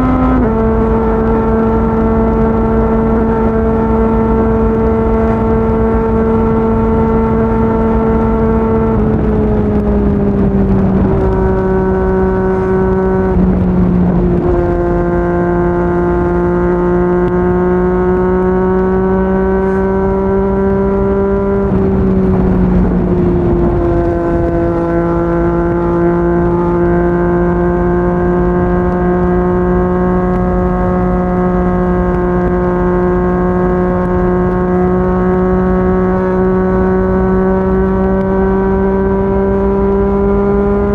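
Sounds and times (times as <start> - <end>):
motorcycle engine running: 0.0 - 40.9
wind rush noise: 0.0 - 40.9.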